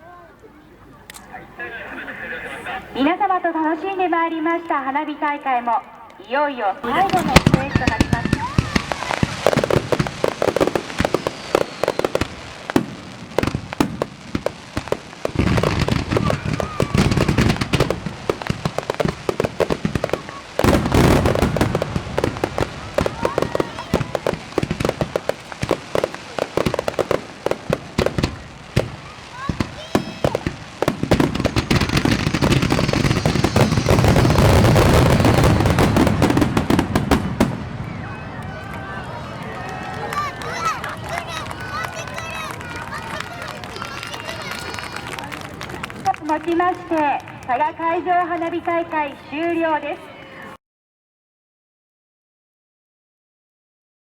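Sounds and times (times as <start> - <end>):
fireworks bangs and crackles: 6.8 - 50.0.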